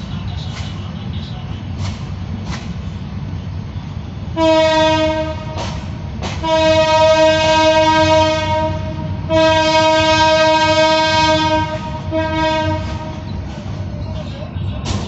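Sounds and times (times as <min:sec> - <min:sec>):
low train rumble: 0:00.0 - 0:15.0
train horn blasts: 0:04.3 - 0:13.5.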